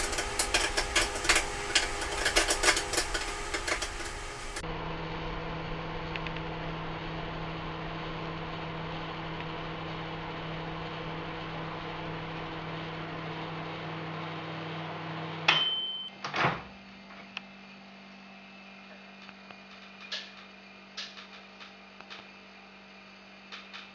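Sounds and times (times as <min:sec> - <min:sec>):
microwave oven humming: 0:00.0 - 0:23.9
short high beep: 0:15.5 - 0:16.1.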